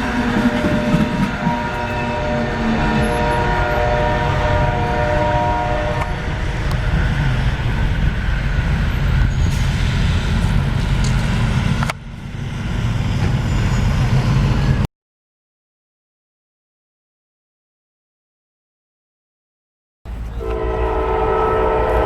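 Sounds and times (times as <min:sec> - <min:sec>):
locomotive horn: 0:00.0 - 0:06.7, 0:20.4 - 0:22.0
train passing rumble: 0:00.0 - 0:14.9, 0:20.1 - 0:22.0.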